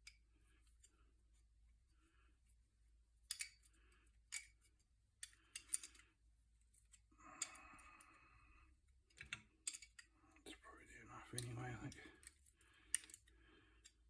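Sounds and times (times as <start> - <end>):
metal parts clinking: 3.3 - 3.7, 4.3 - 6.1, 9.1 - 10.1.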